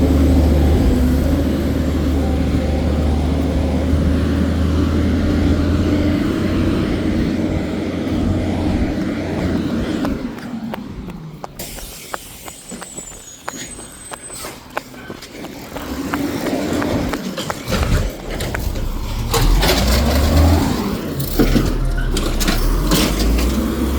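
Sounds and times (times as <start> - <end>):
garbage truck engine revving: 0.0 - 12.6, 15.6 - 23.9
faint high squeal: 11.7 - 15.1
sharp clicks and knocks: 14.8 - 23.7.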